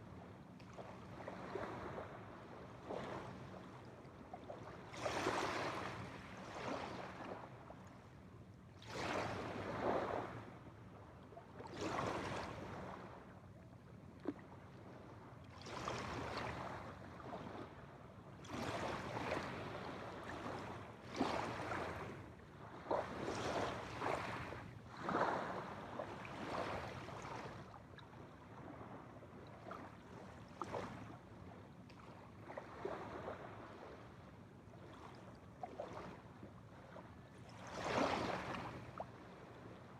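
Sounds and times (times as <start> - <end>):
small waves washing onto shore: 18.4 - 27.6, 34.8 - 39.8.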